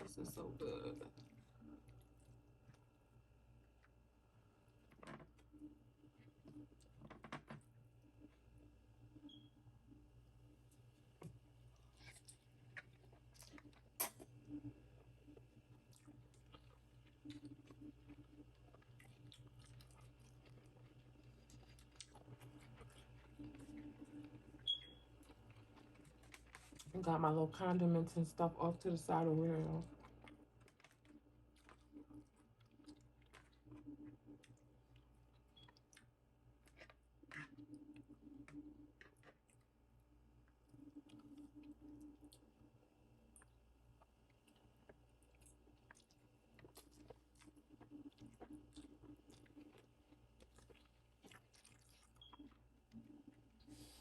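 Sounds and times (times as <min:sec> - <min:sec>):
person chewing food: 0:10.7 - 0:27.0, 0:29.6 - 0:54.0.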